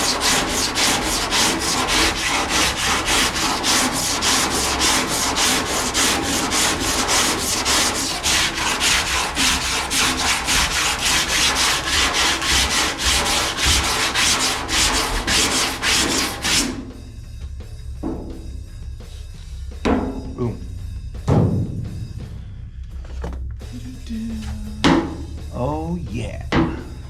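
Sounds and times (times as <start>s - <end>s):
sandpaper rasping by hand: 0.0s - 16.9s.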